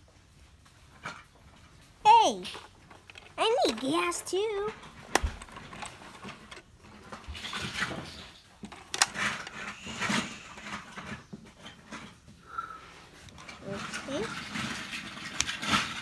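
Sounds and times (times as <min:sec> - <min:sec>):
plastic toys scraping: 0:02.1 - 0:16.0
plastic toy bricks clicking: 0:02.4 - 0:06.6, 0:07.4 - 0:10.8, 0:13.2 - 0:16.0.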